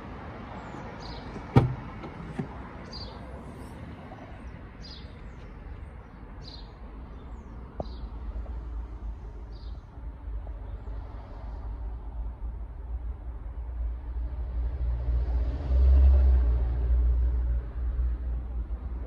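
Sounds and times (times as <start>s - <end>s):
bird chirping: 0.6s - 1.6s, 2.8s - 3.3s, 4.4s - 8.1s.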